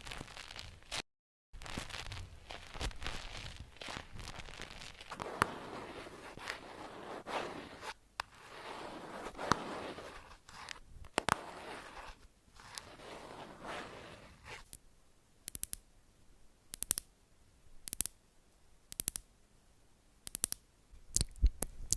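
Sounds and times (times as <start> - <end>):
soft crinkling and rustling: 0.0 - 1.0, 1.6 - 14.8
sharp clicks: 15.4 - 15.8, 16.7 - 17.1, 17.8 - 18.2, 18.9 - 19.3, 20.2 - 21.9.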